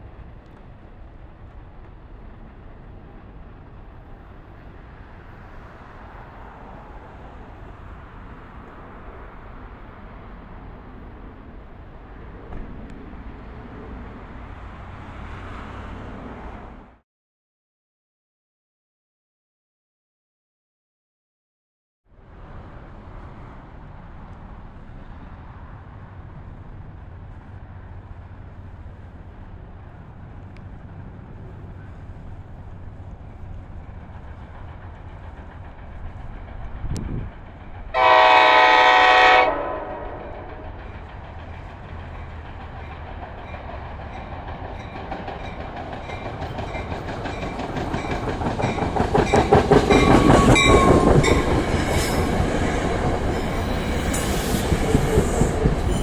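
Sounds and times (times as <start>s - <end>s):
train rumble passing: 0.0s - 17.0s, 22.1s - 56.0s
wheels clicking over rail joints: 30.0s - 38.0s, 40.4s - 56.0s
train horn toot: 37.9s - 40.6s.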